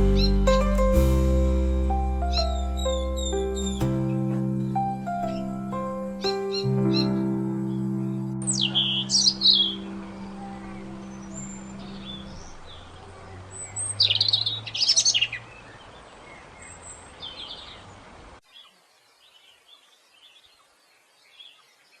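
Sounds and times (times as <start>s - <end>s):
low held music tone: 0.0s - 14.0s
small birds chirping: 2.0s - 22.0s.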